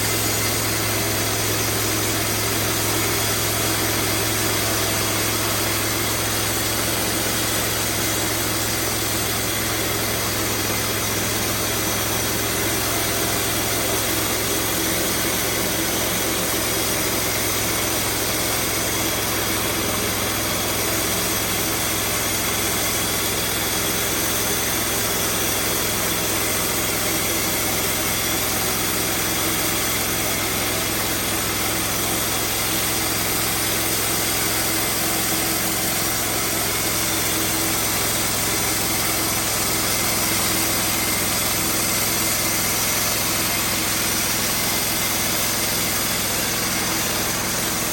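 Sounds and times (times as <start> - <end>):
band sawmill droning: 0.0 - 47.9.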